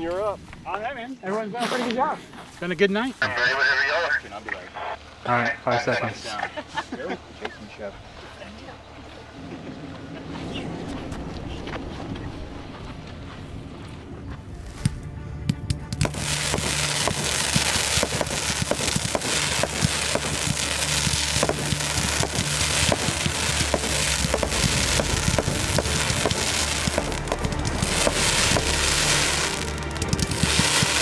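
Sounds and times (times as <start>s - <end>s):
fireworks cracking and popping: 14.6s - 31.0s
music with steady bass line: 14.9s - 31.0s.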